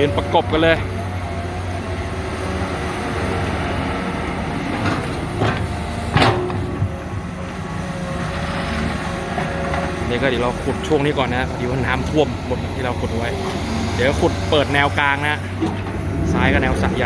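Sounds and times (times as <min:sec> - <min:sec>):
excavator diesel engines running: 0:00.0 - 0:17.0.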